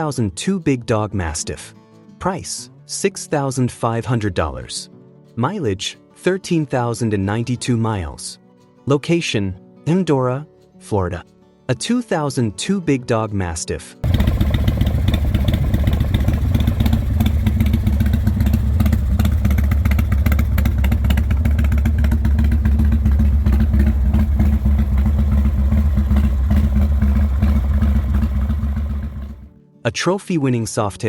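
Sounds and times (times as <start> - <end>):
motorcycle engine running loudly: 14.0 - 29.5.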